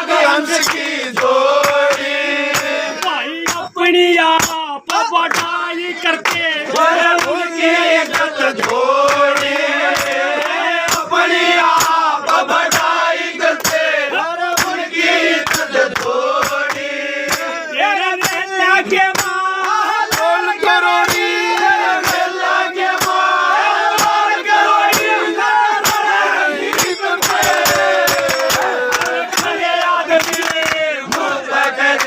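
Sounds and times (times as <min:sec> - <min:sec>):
voices: 0:00.0 - 0:32.0
sharp percussion strokes: 0:19.1 - 0:20.4, 0:21.0 - 0:29.6.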